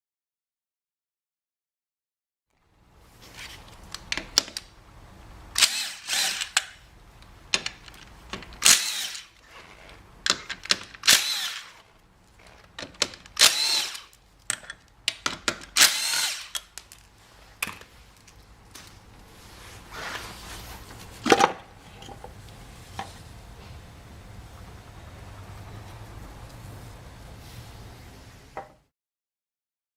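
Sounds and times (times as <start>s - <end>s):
tool handling clicks and knocks: 3.8s - 4.7s, 6.2s - 8.7s, 9.9s - 11.4s, 12.4s - 15.8s, 16.5s - 19.0s, 21.2s - 22.4s
power drill spinning: 5.6s - 6.8s, 8.6s - 10.0s, 11.0s - 12.7s, 13.3s - 14.2s, 15.8s - 16.8s.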